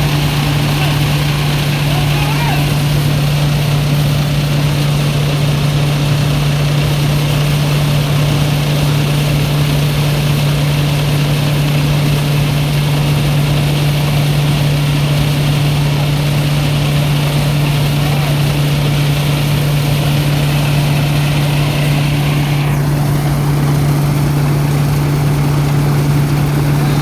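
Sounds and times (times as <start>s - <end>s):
threshing machine engine droning: 0.0s - 27.0s.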